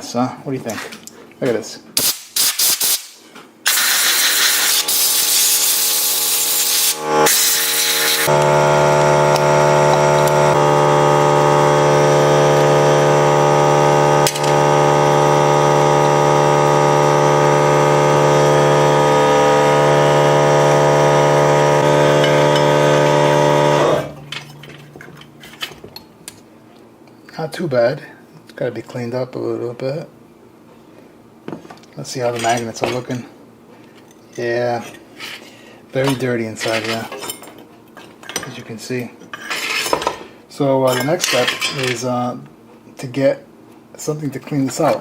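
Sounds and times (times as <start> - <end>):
electric motor humming: 3.7 - 24.3.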